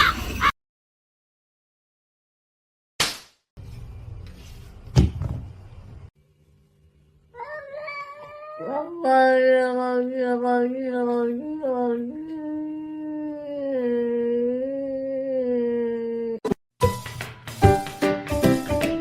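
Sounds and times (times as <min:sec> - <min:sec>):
cat yowling: 0:07.4 - 0:09.4.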